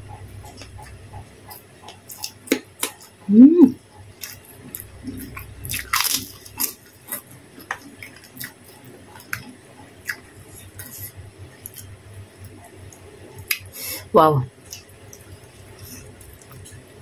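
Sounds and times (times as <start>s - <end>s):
crunching crisp crackers: 4.2s - 9.5s.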